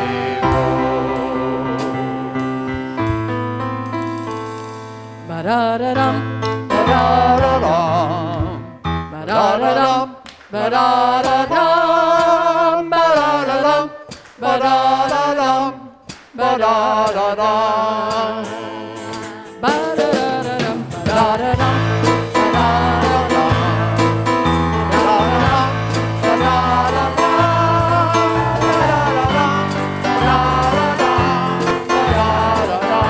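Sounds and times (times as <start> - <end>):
voices singing with vibrato: 0.0 - 3.1, 5.3 - 33.0
sustained instrumental backing: 0.0 - 5.4, 17.6 - 33.0.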